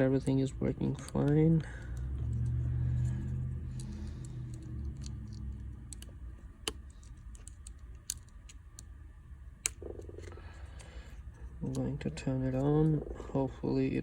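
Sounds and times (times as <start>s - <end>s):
low hum: 0.0s - 14.0s
small clicks and taps of phone parts: 0.9s - 9.0s.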